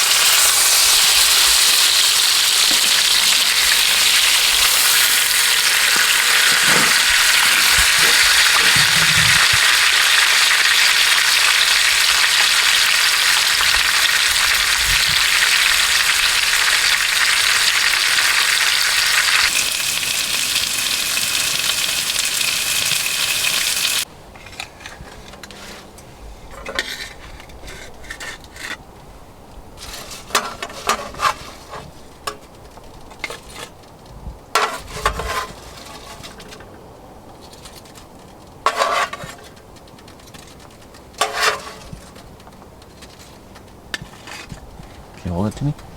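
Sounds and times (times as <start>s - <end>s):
steak sizzling in a pan: 0.0s - 24.1s.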